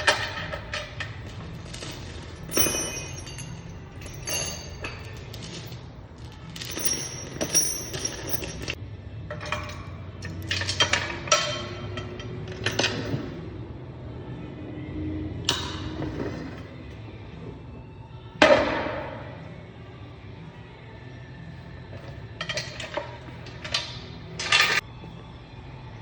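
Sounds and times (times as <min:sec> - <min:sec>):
hard objects clinking: 0:00.1 - 0:08.8.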